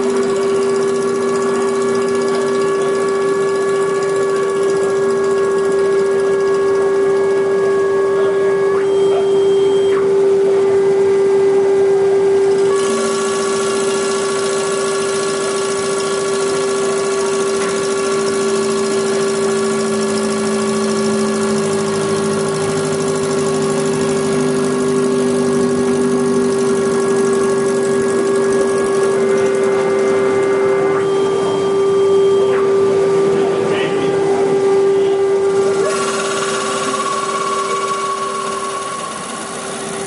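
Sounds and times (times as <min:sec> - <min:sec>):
wood lathe motor hum and whine: 0:00.0 - 0:40.0.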